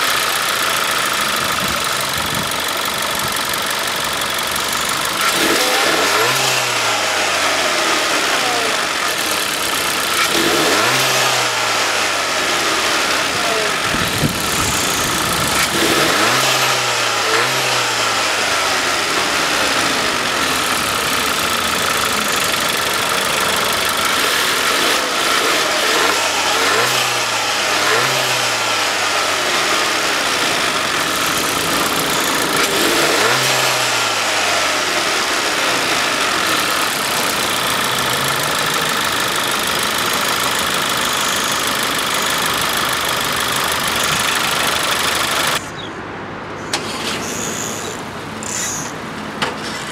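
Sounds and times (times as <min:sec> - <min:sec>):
car engine revving: 0:00.0 - 0:45.7.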